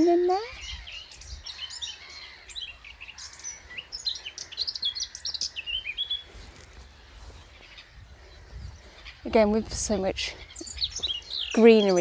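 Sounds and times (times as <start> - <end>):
low wind rumble: 5.7 - 11.8.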